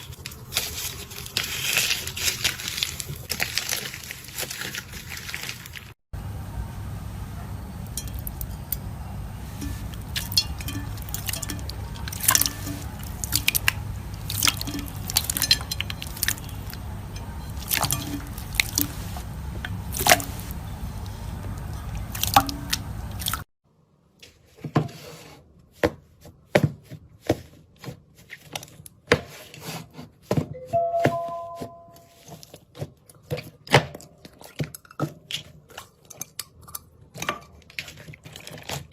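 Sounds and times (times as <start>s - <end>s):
steady low hum: 6.2s - 23.4s.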